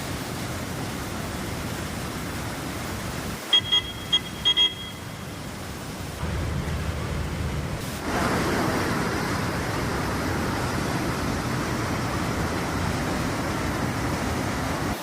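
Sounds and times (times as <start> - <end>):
waterfall roaring: 0.0 - 15.0
short high beeps: 3.5 - 5.2.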